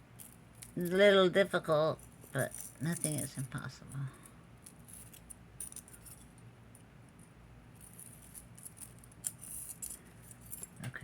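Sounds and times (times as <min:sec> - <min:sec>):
metal chains jingling: 0:07.8 - 0:10.8.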